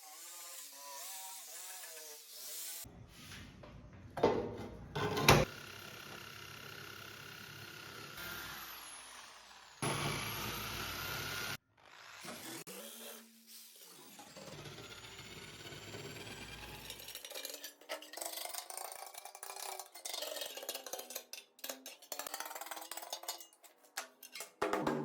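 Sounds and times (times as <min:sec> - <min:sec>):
power tool running: 0:05.4 - 0:12.8, 0:14.1 - 0:17.0.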